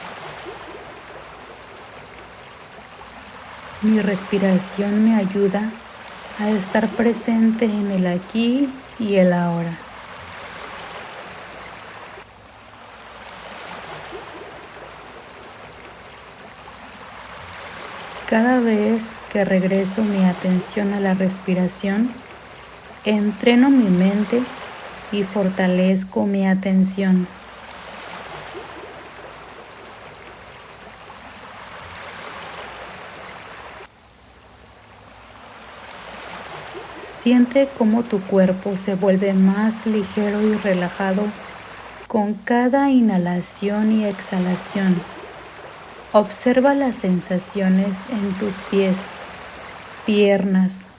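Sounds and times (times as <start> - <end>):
sea waves washing: 0.0 - 50.9.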